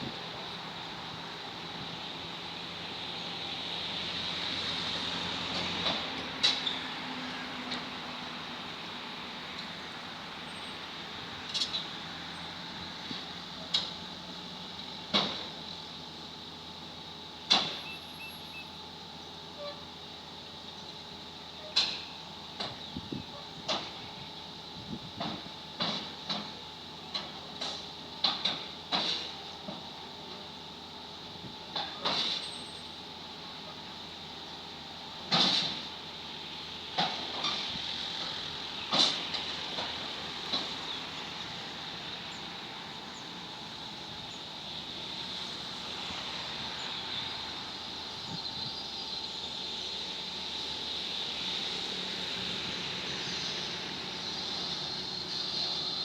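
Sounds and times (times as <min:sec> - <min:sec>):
metal tracks clanking on ramps: 0:25.2 - 0:29.8, 0:31.7 - 0:32.6, 0:35.3 - 0:35.9, 0:38.9 - 0:40.8
heavy machinery running: 0:35.0 - 0:56.0.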